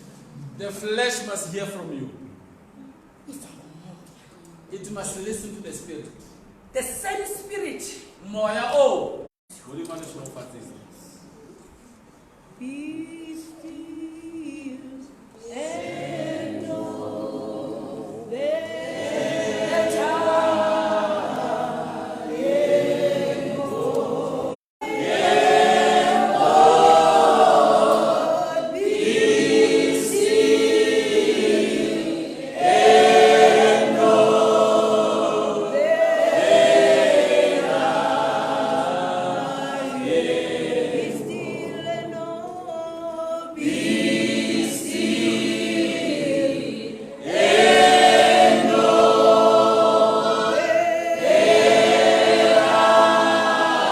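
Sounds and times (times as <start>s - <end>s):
group singing gospel hymn: 12.6s - 53.9s.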